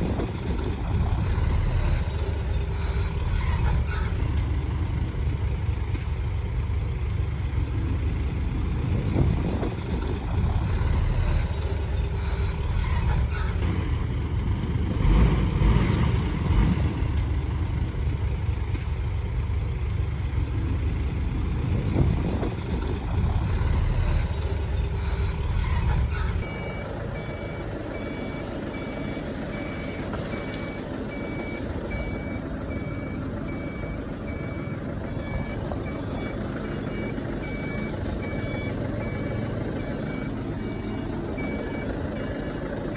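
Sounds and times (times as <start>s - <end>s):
diesel machinery engine rumble: 0.0s - 42.9s
reversing alarm beeping: 23.7s - 42.8s.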